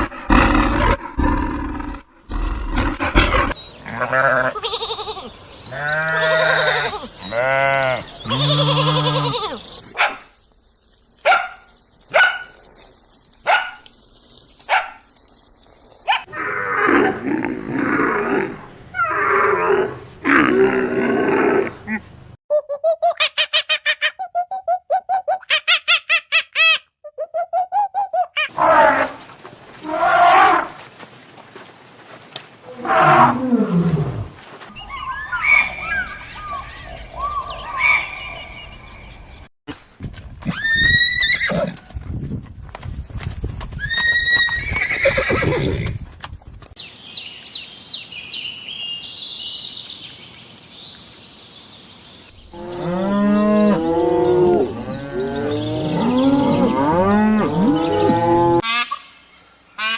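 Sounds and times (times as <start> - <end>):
animal growling call: 0.0 - 4.0
animal barking: 11.2 - 12.6, 13.4 - 13.9
rising animal calls: 32.7 - 38.6
bird chirps: 34.7 - 39.5.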